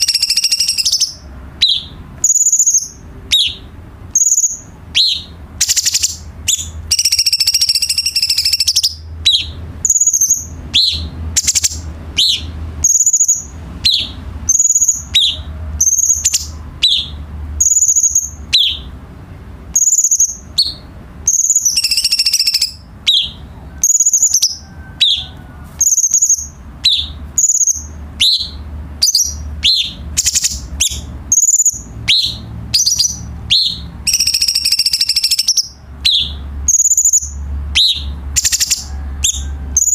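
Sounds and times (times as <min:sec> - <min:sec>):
bird singing whistled notes: 0:00.0 - 0:19.0, 0:19.7 - 0:39.9.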